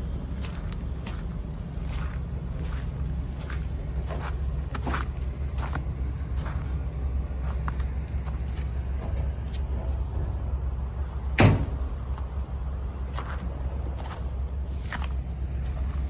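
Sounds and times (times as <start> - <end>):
diesel excavator engine idling: 0.0 - 16.0
loud metallic clank: 11.4 - 11.9.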